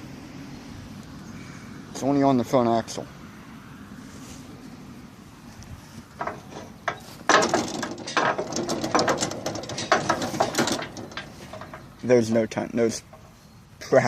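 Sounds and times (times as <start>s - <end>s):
metal trailer hitch clanking: 6.1s - 14.0s.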